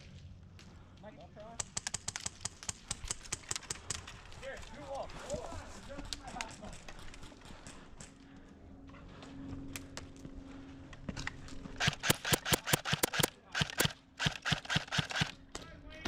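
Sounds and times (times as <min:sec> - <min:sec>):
airsoft gunshots: 0:11.8 - 0:15.4.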